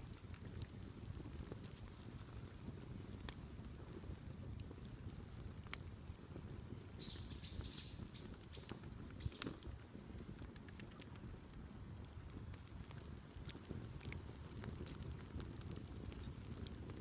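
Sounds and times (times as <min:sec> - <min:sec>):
wood fire crackling: 0:00.0 - 0:17.0
bird chirping: 0:07.0 - 0:09.5.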